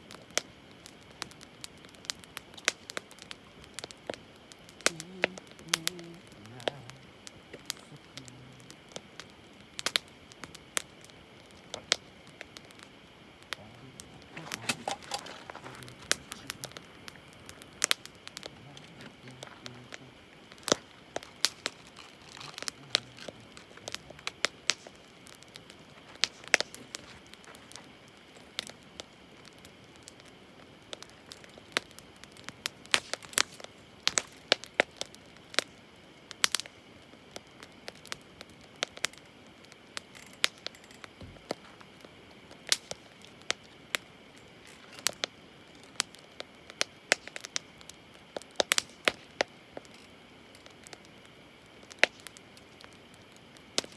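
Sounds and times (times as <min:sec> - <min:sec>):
campfire crackling: 0:00.0 - 0:53.9
faint steady hiss: 0:00.0 - 0:53.9.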